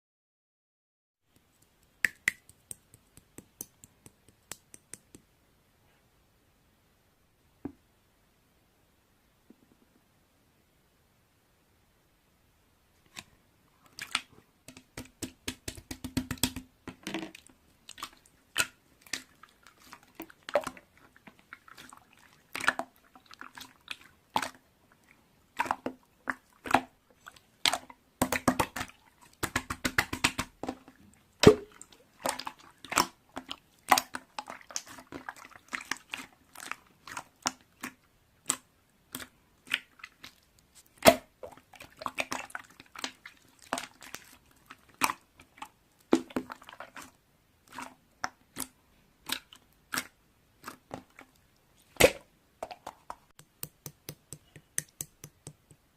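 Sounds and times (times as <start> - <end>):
small objects clicking and tapping: 1.3 - 5.3, 52.6 - 55.9.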